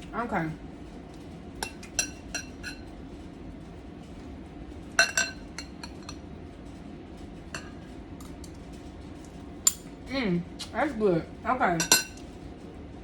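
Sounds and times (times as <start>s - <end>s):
utensil clinking against dishes: 1.6s - 2.9s, 4.8s - 6.2s, 7.5s - 8.6s, 9.2s - 10.0s, 11.7s - 12.3s.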